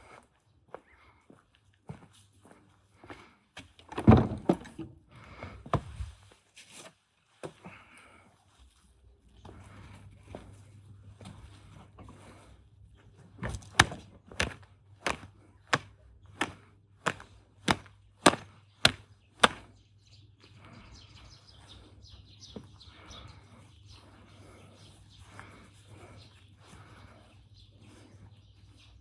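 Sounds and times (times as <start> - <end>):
hammer striking: 15.8 - 19.6.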